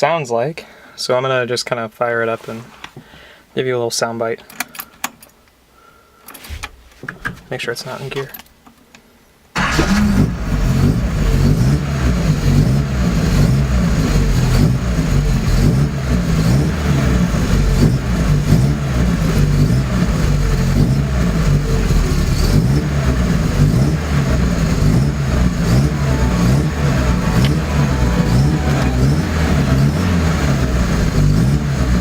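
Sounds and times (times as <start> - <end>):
car engine idling: 9.6 - 32.0.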